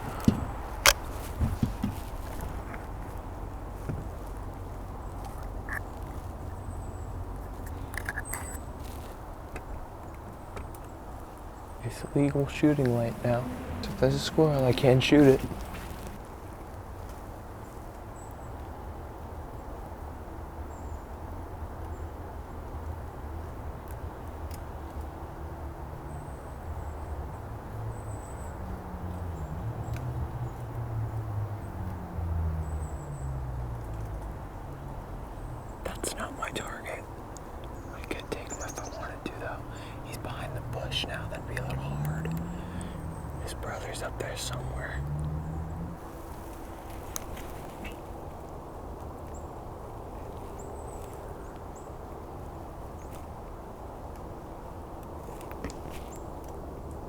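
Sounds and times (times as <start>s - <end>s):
shifting hum: 0.0s - 6.5s, 11.8s - 16.6s, 33.1s - 48.8s
low outdoor rumble: 0.0s - 9.8s, 11.3s - 17.0s, 27.6s - 55.2s
faint bird chirps: 37.7s - 45.8s.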